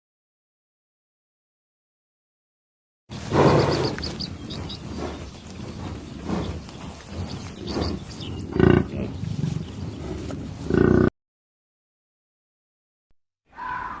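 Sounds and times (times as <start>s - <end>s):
low rough animal calls: 3.1s - 11.1s.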